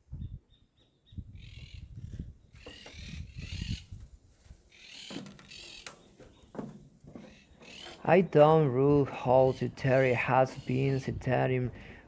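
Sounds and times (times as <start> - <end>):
birds squawking: 2.5 - 4.0, 4.7 - 8.4, 9.1 - 11.2
footsteps on metal staircase: 6.1 - 8.0.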